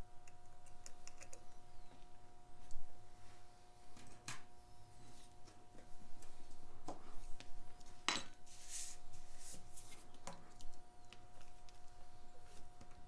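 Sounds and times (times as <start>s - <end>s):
faint steady hum: 0.0s - 13.0s
metal clicks and taps of tools: 0.2s - 1.5s.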